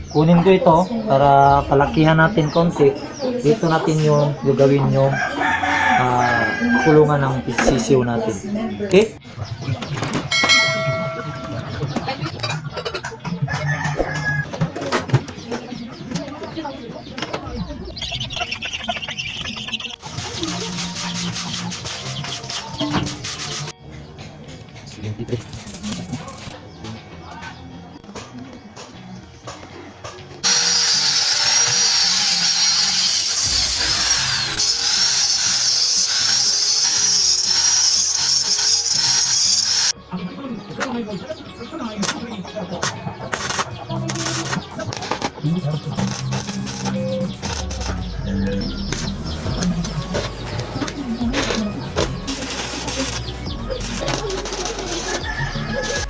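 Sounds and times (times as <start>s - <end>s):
chickens calling: 0.0s - 30.3s, 39.9s - 56.0s
background music: 0.0s - 32.0s, 39.9s - 56.0s
metal cage ringing: 10.3s - 12.2s
gritty hiss: 49.0s - 56.0s.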